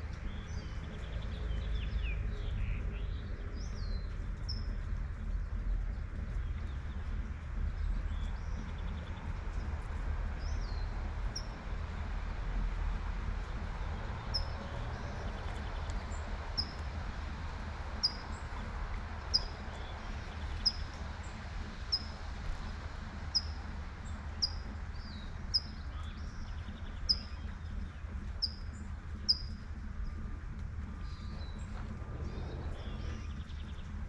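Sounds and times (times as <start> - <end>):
distant traffic rumble: 0.0 - 34.0
bird chirping: 24.4 - 30.2.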